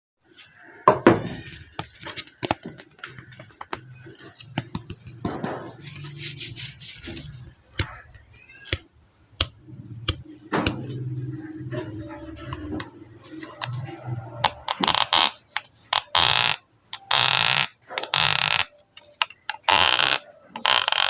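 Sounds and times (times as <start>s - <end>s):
rustling and scraping: 0.3s - 8.9s, 9.5s - 16.6s.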